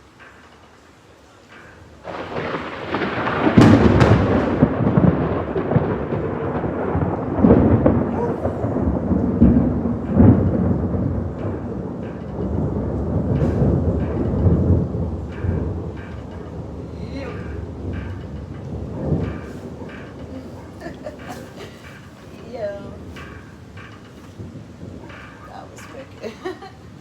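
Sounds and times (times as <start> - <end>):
rolling thunder rumble: 1.2 - 27.0
thunder crack: 1.5 - 27.0.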